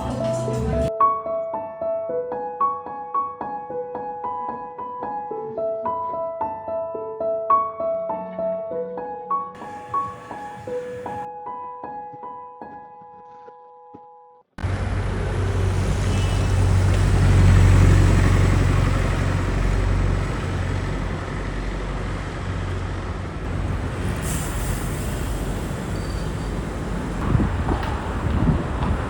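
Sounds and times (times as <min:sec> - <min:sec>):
heavy vehicle engine rumbling: 0:00.0 - 0:00.9, 0:09.6 - 0:11.3, 0:14.6 - 0:29.0
street traffic: 0:00.0 - 0:00.9, 0:09.6 - 0:11.3, 0:14.6 - 0:29.0
short hiss: 0:24.0 - 0:26.6.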